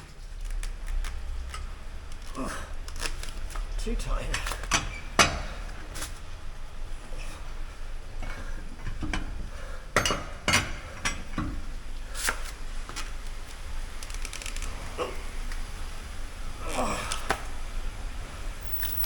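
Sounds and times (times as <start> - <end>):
metal tools clinking: 18.6 - 19.0.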